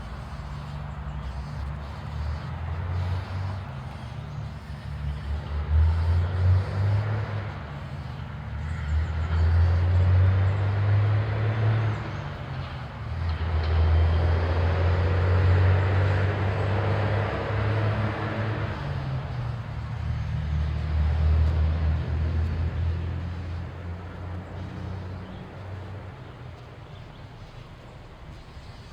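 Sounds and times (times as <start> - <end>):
road traffic rumble: 0.0 - 28.9.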